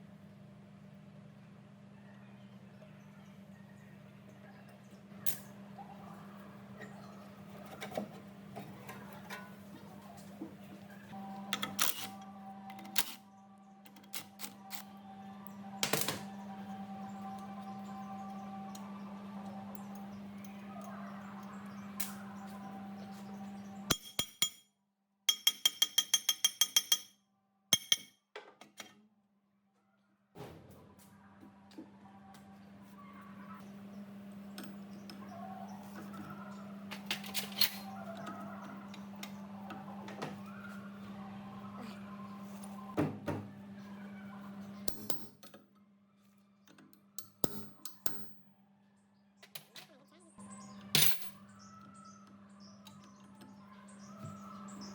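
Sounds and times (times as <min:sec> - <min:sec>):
machine hum: 0:00.0 - 0:23.9, 0:30.4 - 0:45.0.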